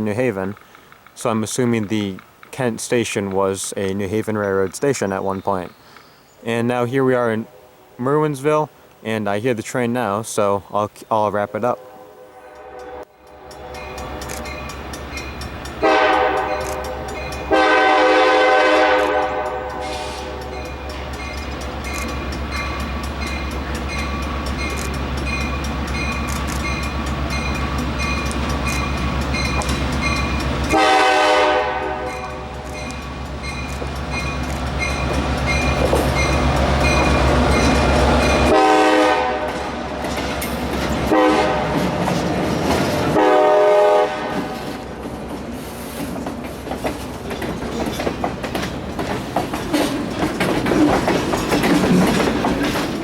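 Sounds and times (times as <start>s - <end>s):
rail cars rolling: 9.7s - 53.0s
locomotive engine drone: 11.4s - 53.0s
locomotive horn blasts: 11.7s - 14.0s, 15.8s - 21.1s, 30.7s - 32.9s, 38.4s - 39.8s, 41.1s - 41.9s, 43.1s - 44.8s.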